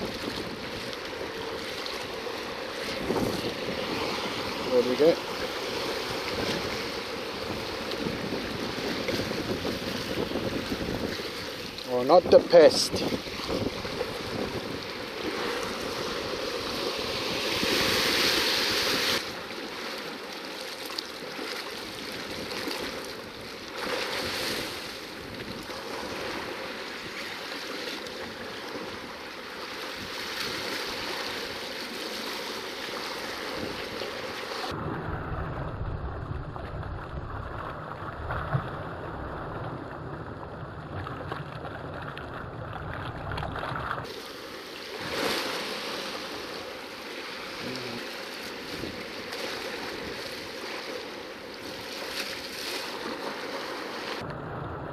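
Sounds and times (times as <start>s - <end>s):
wind buffeting microphone: 0.0s - 19.2s, 33.4s - 44.1s
sea surf washing against rocks: 0.0s - 54.9s
muffled low rumble: 34.8s - 41.0s.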